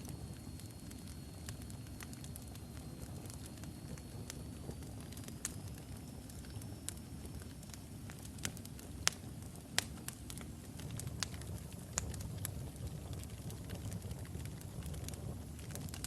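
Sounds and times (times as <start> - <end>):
fire crackling and popping: 0.0 - 16.0
low rumble of flame: 0.0 - 16.0.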